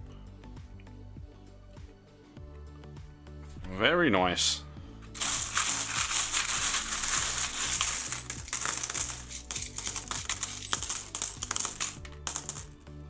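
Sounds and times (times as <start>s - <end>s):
coins clinking: 5.1s - 12.8s.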